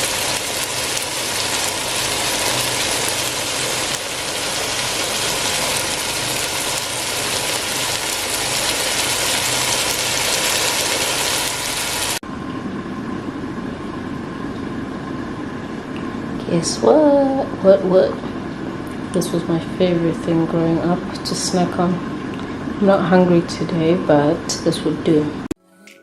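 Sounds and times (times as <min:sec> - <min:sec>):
food sizzling in a pot: 0:00.0 - 0:12.2.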